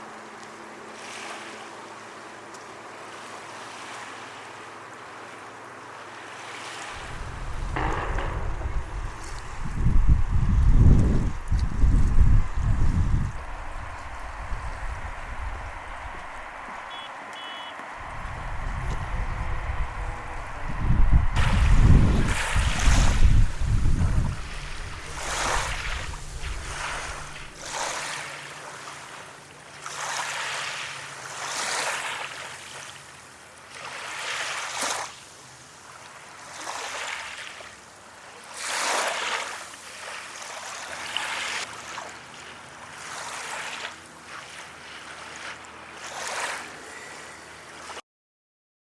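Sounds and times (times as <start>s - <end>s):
waves breaking on a beach: 0.0s - 48.0s
wind on microphone rumble: 7.0s - 16.9s, 18.0s - 28.0s.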